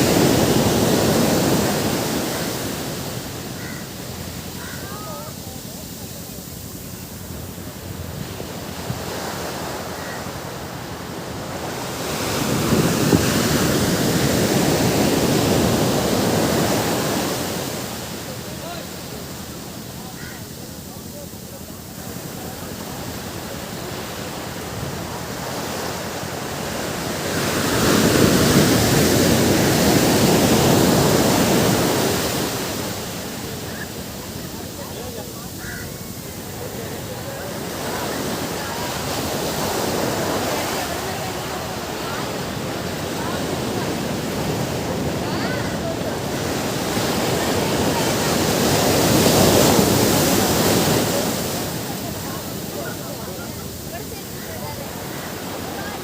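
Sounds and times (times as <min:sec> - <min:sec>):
ocean surf on a beach: 0:00.0 - 0:56.0.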